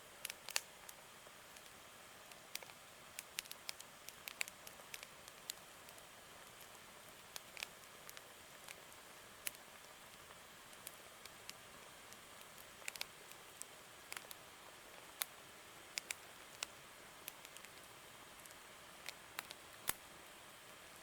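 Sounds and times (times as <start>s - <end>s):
faint steady hiss: 0.0s - 21.0s
campfire crackling and popping: 0.2s - 20.0s.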